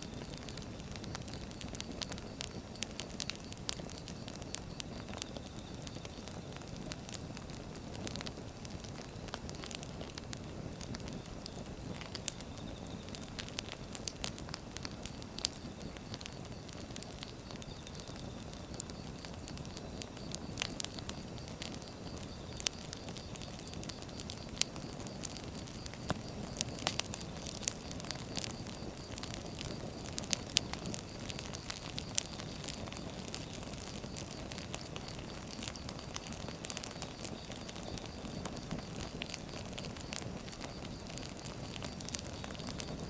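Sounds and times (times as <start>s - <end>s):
burning wood crackling and popping: 0.0s - 43.0s
hiss of flame: 0.0s - 43.0s.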